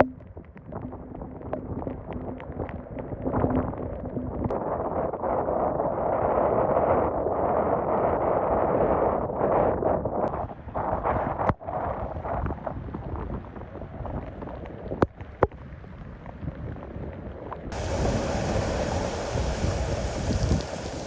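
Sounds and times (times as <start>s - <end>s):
rough surf: 17.7s - 21.0s
strong wind gusting: 17.7s - 21.0s.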